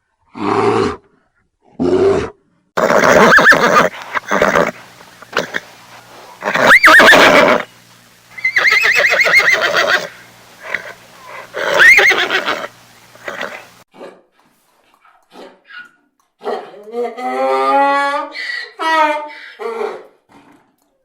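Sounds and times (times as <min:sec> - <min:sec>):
horse snorting: 0:01.8 - 0:13.8
horse whinnying: 0:01.9 - 0:07.7, 0:08.4 - 0:13.8.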